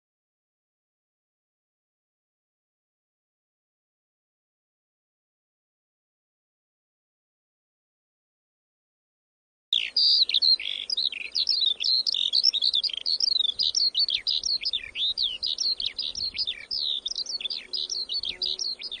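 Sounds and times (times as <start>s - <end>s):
small birds chirping: 9.8s - 19.0s.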